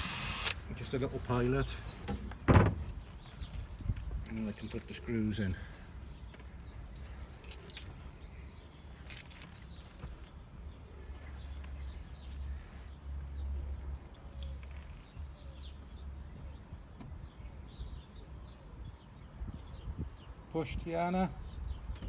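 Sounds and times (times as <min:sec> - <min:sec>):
sharp clicks: 0:00.0 - 0:00.6.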